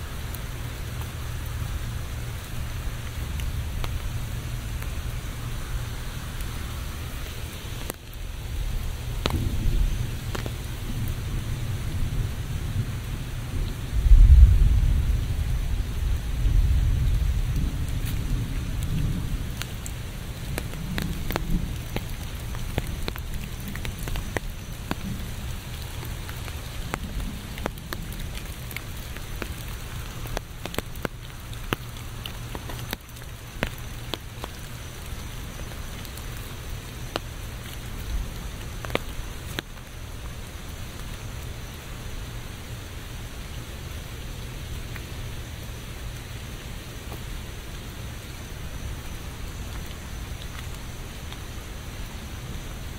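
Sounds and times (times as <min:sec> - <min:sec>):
rain drops ticking: 0:00.0 - 0:52.9
thunder rumbling: 0:08.4 - 0:30.0.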